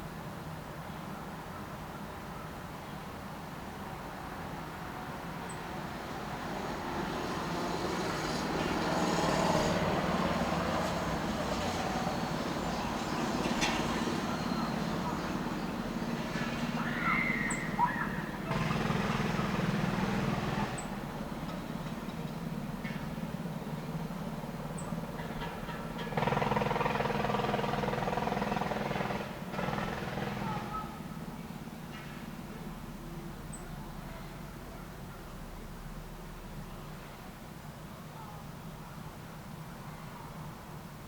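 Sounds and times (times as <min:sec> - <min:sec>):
vehicle passing: 0:06.3 - 0:21.8, 0:23.4 - 0:31.3
louder engine noise: 0:07.3 - 0:33.2.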